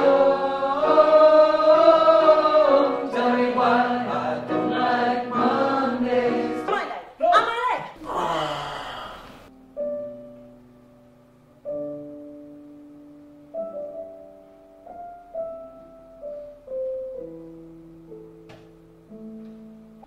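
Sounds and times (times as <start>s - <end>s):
slow piano chords: 0.0s - 6.7s, 8.0s - 20.0s.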